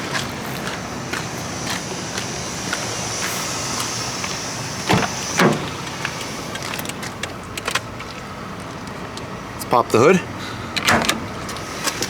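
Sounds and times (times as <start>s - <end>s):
steady background noise: 0.0s - 12.0s
car door clunks: 0.1s - 8.2s, 10.7s - 12.0s.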